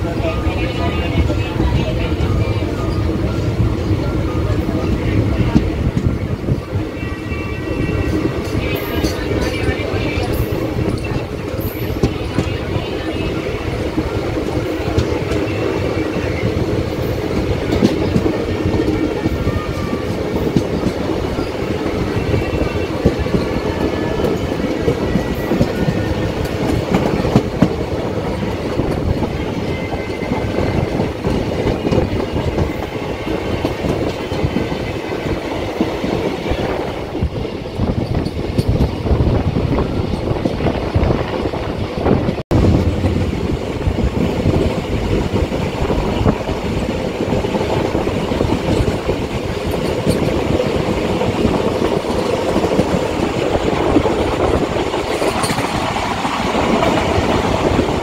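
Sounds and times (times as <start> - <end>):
train rumble: 0.0 - 58.0
wheels clacking over rail joints: 46.7 - 58.0.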